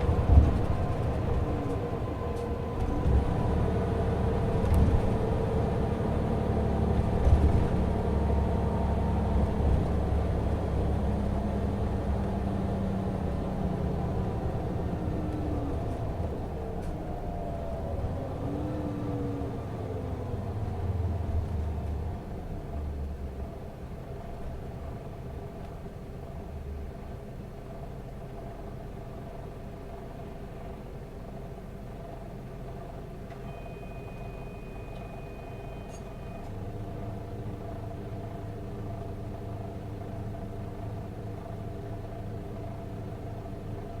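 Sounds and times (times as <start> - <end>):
bus diesel engine: 0.0 - 44.0
high electronic beep: 33.4 - 36.4.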